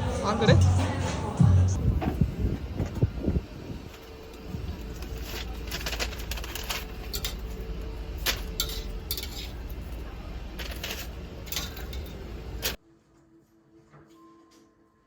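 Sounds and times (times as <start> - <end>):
restaurant murmur: 4.2 - 12.8
dishes and cutlery clinking: 5.1 - 12.8.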